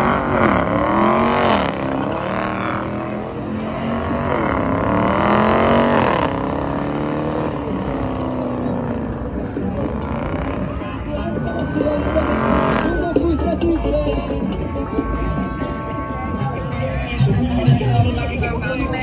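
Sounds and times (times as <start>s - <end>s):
car engine revving hard: 0.0s - 10.8s, 11.9s - 13.0s
tires spinning on pavement: 0.0s - 13.2s.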